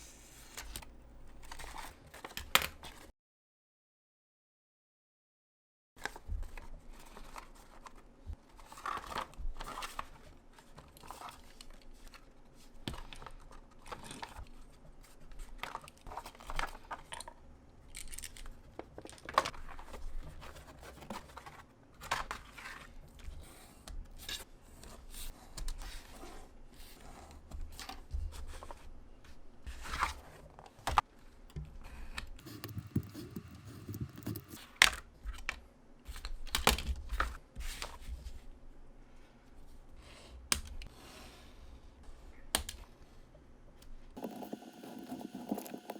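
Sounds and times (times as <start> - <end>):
scissors snipping: 32.4 - 34.7.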